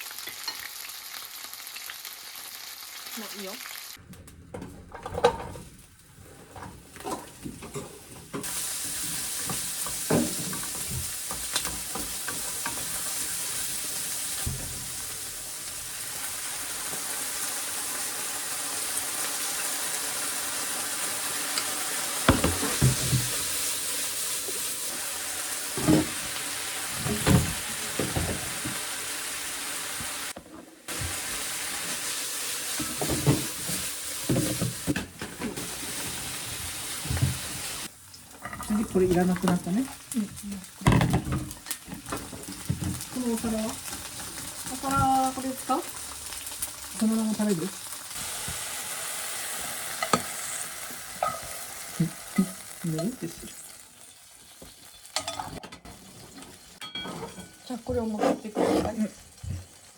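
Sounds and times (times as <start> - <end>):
food sizzling in a frying pan: 0.0 - 4.0, 6.8 - 58.2, 58.9 - 59.9
utensil scraping a pan: 57.0 - 59.2.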